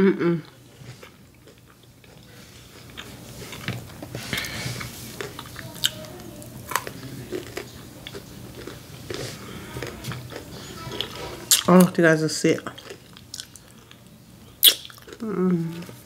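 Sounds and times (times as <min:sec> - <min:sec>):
chewing with wet mouth smacks: 0:05.2 - 0:11.8, 0:12.7 - 0:15.2.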